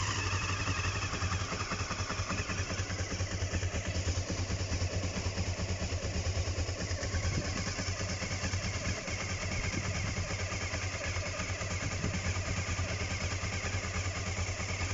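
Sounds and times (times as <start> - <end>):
motorcycle engine idling: 0.0 - 14.9.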